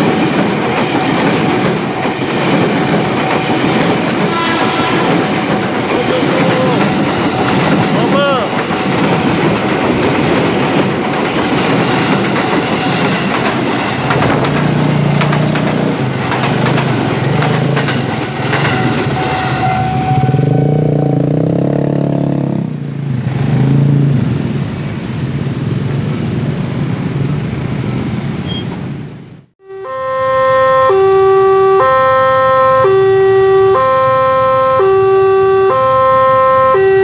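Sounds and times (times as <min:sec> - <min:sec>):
wheels clattering over rail joints: 0:00.0 - 0:20.5
commuter train rumbling: 0:00.0 - 0:37.0.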